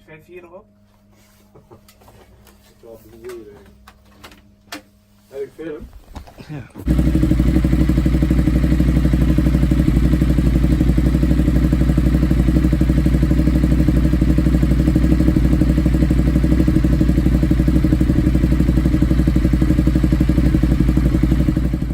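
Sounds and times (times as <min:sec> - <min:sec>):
motorcycle engine running: 0:06.8 - 0:21.9.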